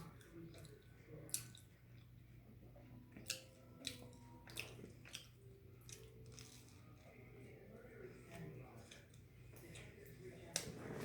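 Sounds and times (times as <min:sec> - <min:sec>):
person chewing food: 0:00.0 - 0:02.2, 0:03.1 - 0:07.1.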